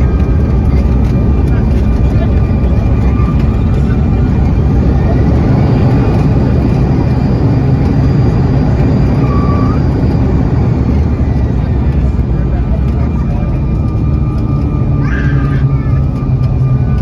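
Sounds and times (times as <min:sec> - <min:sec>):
jet engines rumbling in cabin: 0:00.0 - 0:17.0.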